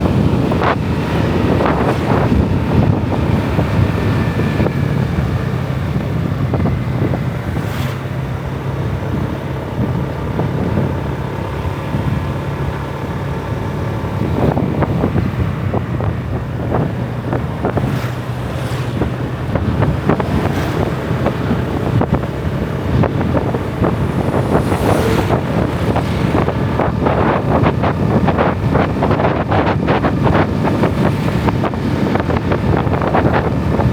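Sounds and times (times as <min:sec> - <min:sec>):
wind buffeting microphone: 0:00.0 - 0:33.9
motorbike engine running: 0:08.3 - 0:33.9.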